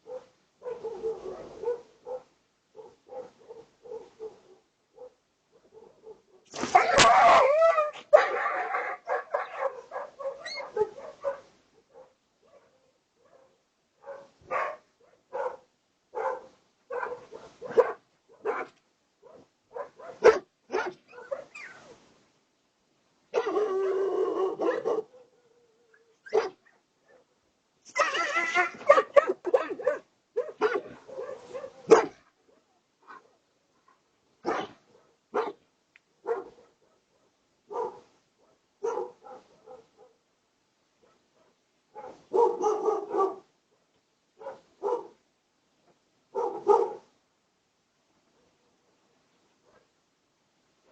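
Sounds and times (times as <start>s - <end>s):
dog barking: 0.0s - 21.6s, 23.3s - 25.5s, 26.3s - 27.3s, 28.1s - 35.6s, 36.2s - 40.2s, 41.0s - 43.5s, 44.4s - 45.2s, 46.3s - 47.1s, 49.6s - 49.9s
dog yelping: 6.0s - 11.4s, 25.9s - 27.2s, 27.9s - 32.2s.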